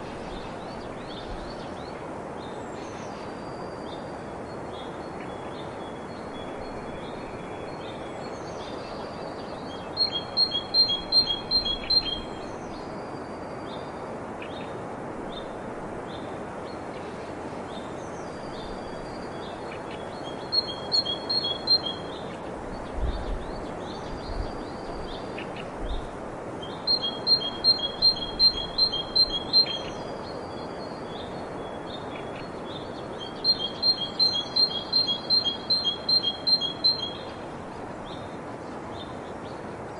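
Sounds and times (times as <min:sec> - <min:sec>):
songbird singing: 0:00.0 - 0:39.9
steady background hiss: 0:00.0 - 0:39.9.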